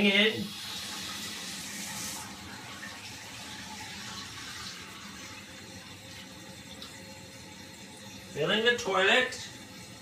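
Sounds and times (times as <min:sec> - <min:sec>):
toilet tank refilling with water: 0:00.0 - 0:10.0.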